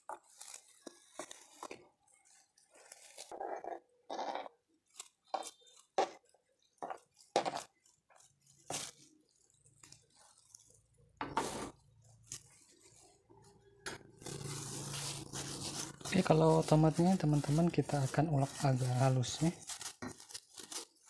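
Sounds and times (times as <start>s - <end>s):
scraping on cutting board: 11.2s - 11.8s.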